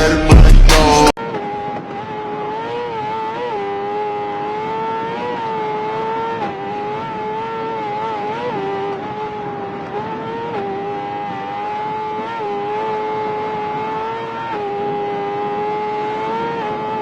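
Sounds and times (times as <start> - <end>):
rap music: 0.0 - 1.2
motorcycle engine running at high speed: 0.0 - 17.0.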